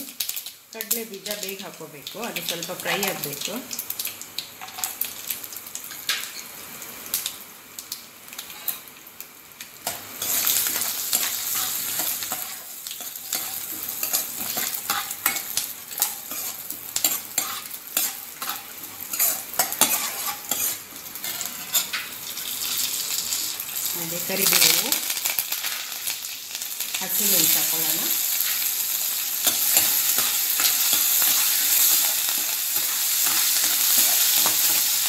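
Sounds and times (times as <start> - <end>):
peanuts sizzling in oil: 0.0 - 35.0.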